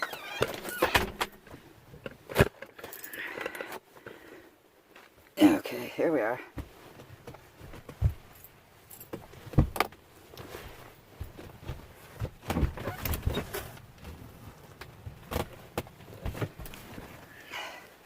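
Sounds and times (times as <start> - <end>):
knocks and clunks: 0.2 - 2.6, 9.1 - 10.0, 11.2 - 14.2.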